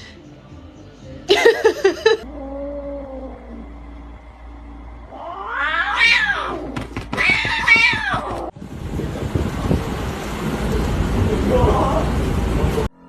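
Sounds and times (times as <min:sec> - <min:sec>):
steady noise: 0:02.2 - 0:13.0
cat meowing: 0:05.1 - 0:08.5.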